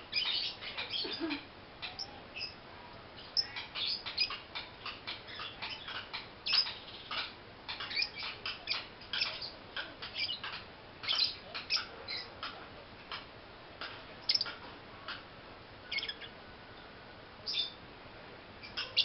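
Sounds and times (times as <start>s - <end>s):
lovebird chirping: 0.1s - 2.6s, 3.2s - 12.3s, 14.2s - 14.6s, 15.8s - 16.4s, 17.4s - 17.8s.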